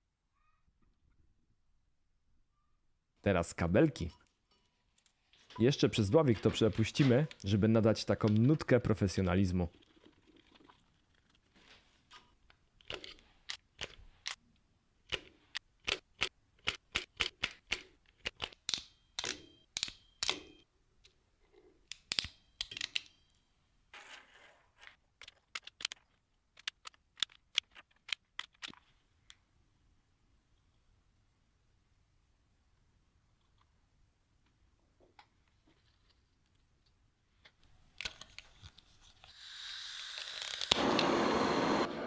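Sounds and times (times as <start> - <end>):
cable gland clicks and snaps: 25.2 - 29.4.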